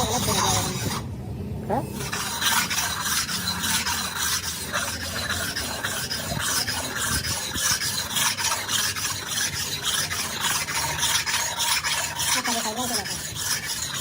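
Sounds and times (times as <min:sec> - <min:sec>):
filing strokes rasping: 0:00.0 - 0:01.0, 0:01.7 - 0:14.0.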